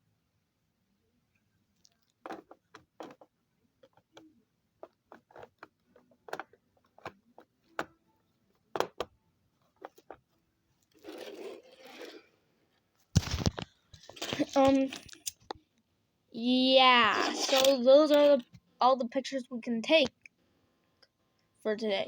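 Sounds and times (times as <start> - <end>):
small objects clicking and tapping: 1.8 - 8.0, 13.2 - 15.6
scraping rustle: 10.9 - 12.4.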